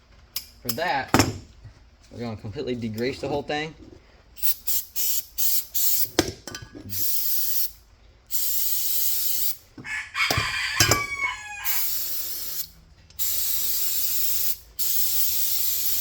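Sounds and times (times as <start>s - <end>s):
aerosol spray hissing: 6.9s - 7.7s, 8.3s - 9.6s, 11.6s - 16.0s.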